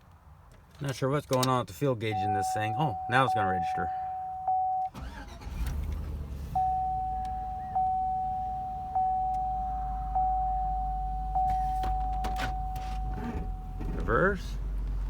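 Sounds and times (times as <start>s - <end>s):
dashboard warning chime: 2.1s - 5.4s, 6.6s - 14.0s
truck engine idling: 2.1s - 5.8s.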